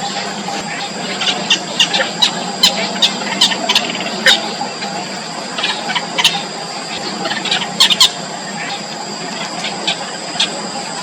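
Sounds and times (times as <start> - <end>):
steady high-pitched whine: 0.0 - 11.0
bird chicks squeaky calls: 0.6 - 8.8.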